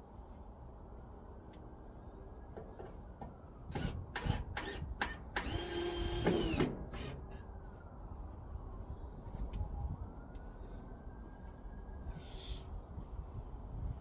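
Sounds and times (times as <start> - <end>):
power drill whirring: 3.7 - 7.4.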